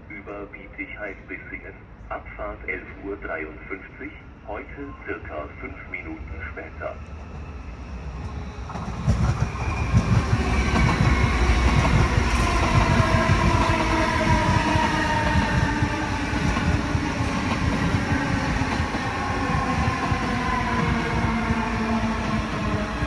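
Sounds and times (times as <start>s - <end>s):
train whining tone: 4.8s - 23.0s.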